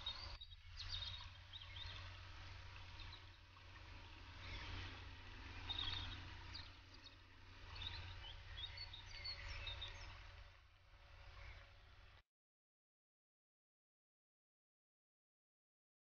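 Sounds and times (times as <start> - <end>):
birds chirping: 0.0 - 12.2
low steady rumble: 0.0 - 12.2.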